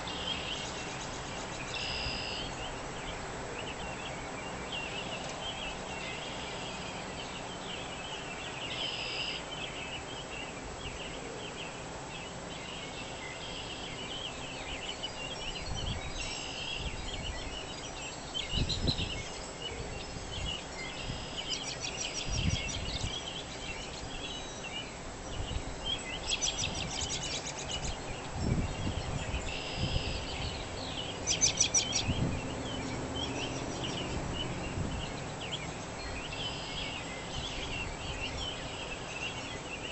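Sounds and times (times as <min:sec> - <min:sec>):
rapid bird trills: 0:00.0 - 0:11.5, 0:25.7 - 0:39.9
birds chirping and singing: 0:00.0 - 0:39.9.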